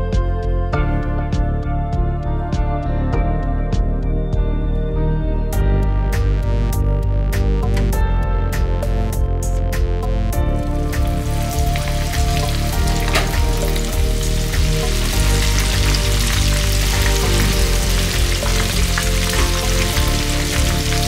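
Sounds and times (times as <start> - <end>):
chicken deep-frying in oil: 10.6 - 21.0.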